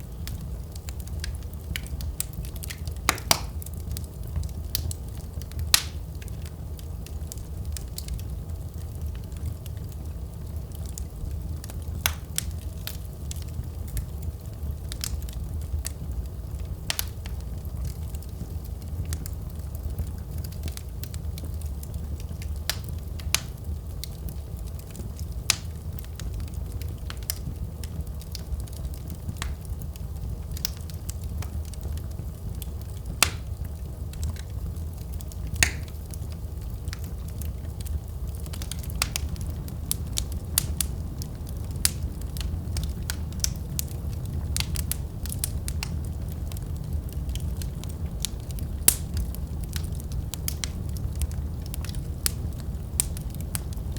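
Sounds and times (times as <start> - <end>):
fire crackling and popping: 0.0 - 53.9
fire low rumble: 0.0 - 53.9.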